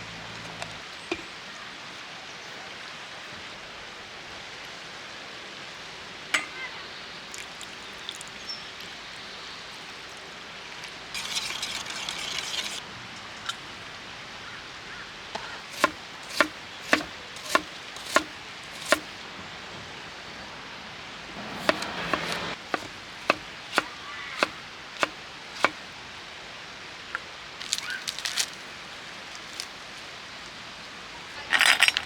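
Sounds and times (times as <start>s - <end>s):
knife chopping on cutting board: 15.7s - 19.1s, 21.5s - 25.8s
stream hissing: 15.7s - 19.2s, 21.1s - 26.3s.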